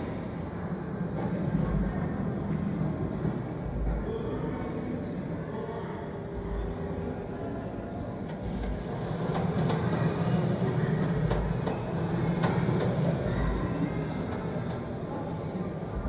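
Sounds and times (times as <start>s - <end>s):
train rumbling: 8.0s - 16.0s.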